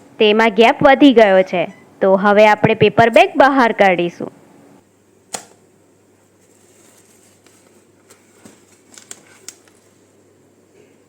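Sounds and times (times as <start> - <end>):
paper bag crackling: 6.4 - 10.1.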